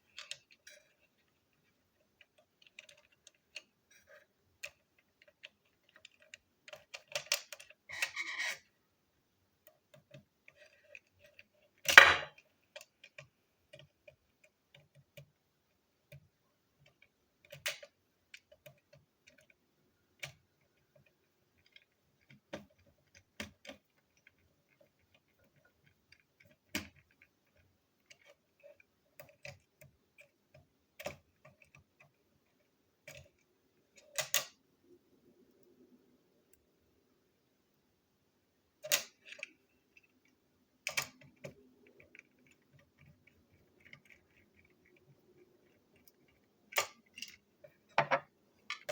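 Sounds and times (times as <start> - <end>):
plastic toy pieces clicking: 2.2 - 3.7, 4.6 - 8.6, 16.1 - 19.6, 20.2 - 32.2, 33.0 - 34.6, 38.8 - 48.9.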